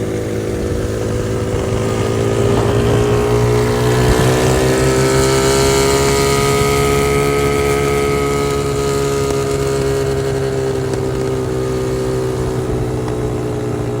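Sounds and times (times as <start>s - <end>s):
dirt bike engine running: 0.0s - 14.0s.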